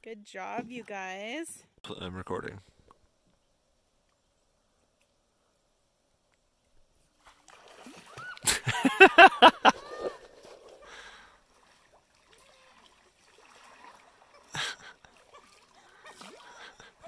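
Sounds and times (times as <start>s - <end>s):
water sloshing and lapping: 7.0s - 8.8s, 9.6s - 17.0s.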